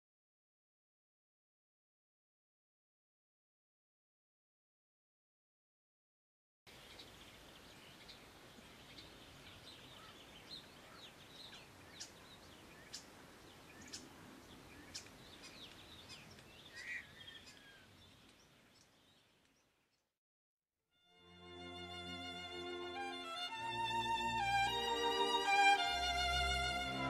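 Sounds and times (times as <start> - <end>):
soft background hiss: 6.7 - 19.8
small birds chirping: 6.7 - 20.1.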